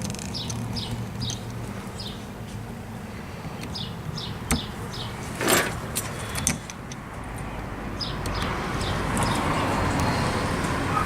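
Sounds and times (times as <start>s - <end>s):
bird chirping: 0.2s - 2.5s, 3.5s - 6.6s, 7.9s - 11.0s
tool scraping: 4.6s - 6.7s.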